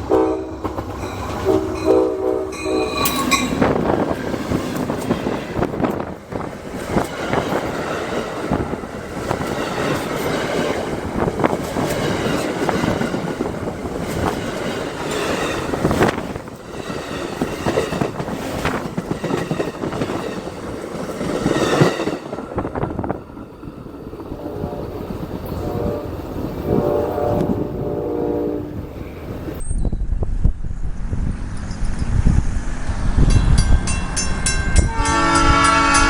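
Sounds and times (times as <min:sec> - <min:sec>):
freight train wheels clattering: 0:00.0 - 0:27.8
train rumble: 0:00.0 - 0:36.0.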